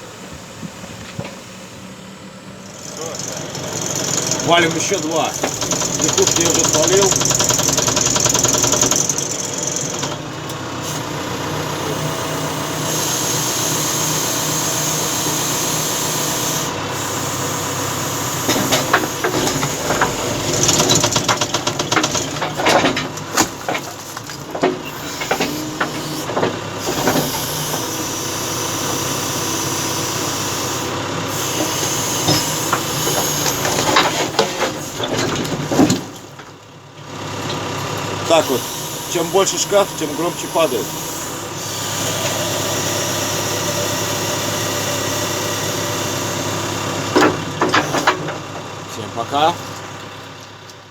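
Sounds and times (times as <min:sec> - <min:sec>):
diesel engine working: 0:00.0 - 0:50.9
concrete posts breaking and falling: 0:04.2 - 0:10.4, 0:18.5 - 0:28.2, 0:31.9 - 0:36.6
hydraulic hiss: 0:24.8 - 0:35.1, 0:38.3 - 0:46.8.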